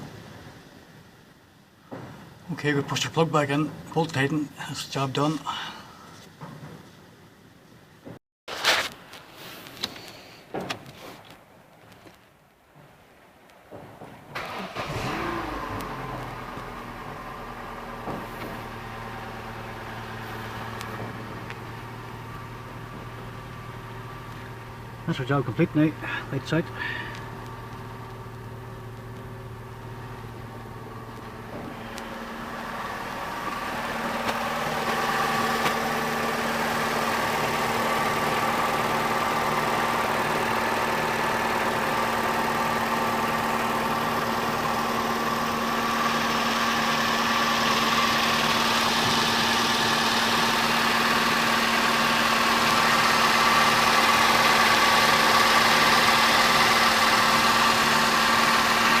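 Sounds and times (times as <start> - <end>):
car engine idling: 14.3 - 59.0.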